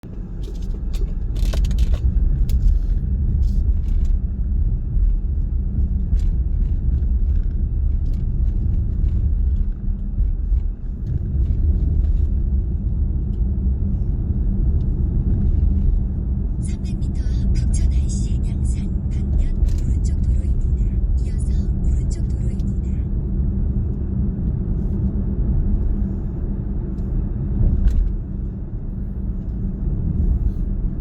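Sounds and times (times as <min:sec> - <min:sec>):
car road and engine rumble: 0:00.0 - 0:31.0.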